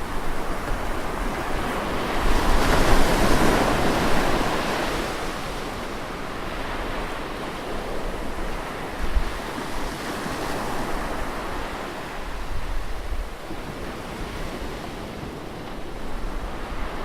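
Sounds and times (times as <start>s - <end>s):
ocean surf on sandy beach: 0.0s - 17.0s
wind buffet on microphone: 0.0s - 17.0s.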